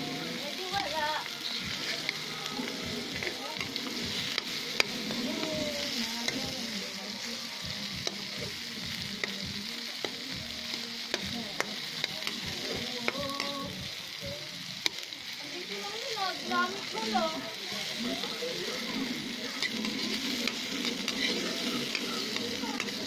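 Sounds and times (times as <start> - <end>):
vegetables sizzling in oil: 0.0 - 23.0
metal spoon scraping a wok: 0.1 - 6.7, 18.2 - 23.0.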